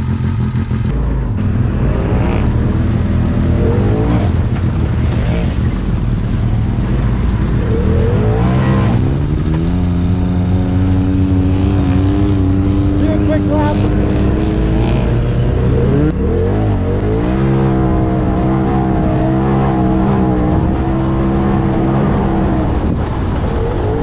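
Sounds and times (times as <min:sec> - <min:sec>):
utility vehicle engine accelerating: 0:00.0 - 0:24.0.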